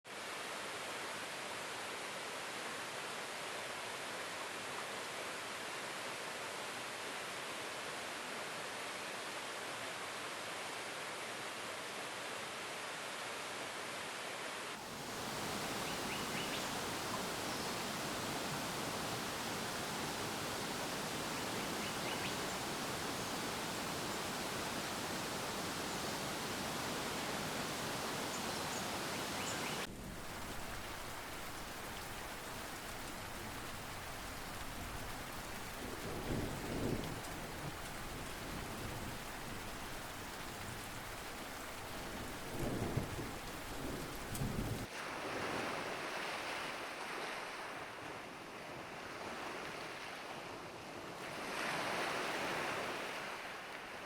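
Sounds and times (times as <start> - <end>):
hiss of falling water: 14.7 - 46.8
rain falling: 14.8 - 44.9
low rolls of thunder: 33.9 - 44.9.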